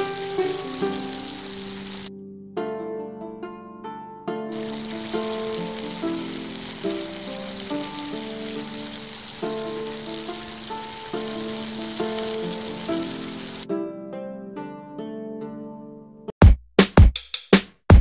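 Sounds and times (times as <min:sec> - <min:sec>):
dough deep-frying in oil: 0:00.0 - 0:02.1, 0:04.5 - 0:13.6.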